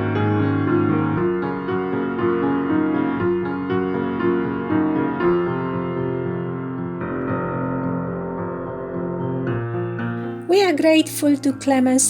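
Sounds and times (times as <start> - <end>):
slow gentle instrumental music: 9.5 - 12.0.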